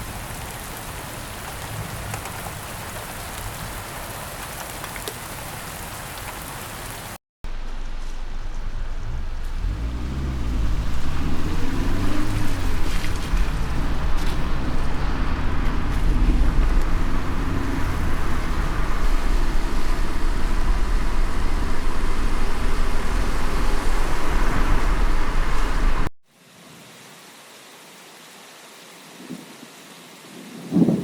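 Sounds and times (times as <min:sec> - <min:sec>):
heavy rain: 0:00.0 - 0:26.1
light rain hiss: 0:00.0 - 0:31.0
deep low rumble: 0:07.5 - 0:26.1.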